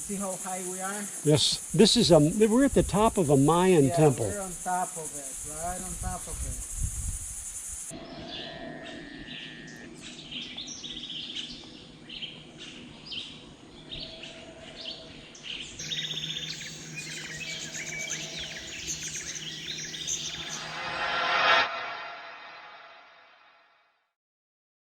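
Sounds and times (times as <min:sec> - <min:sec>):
birds calling and chirping: 0:07.9 - 0:20.8.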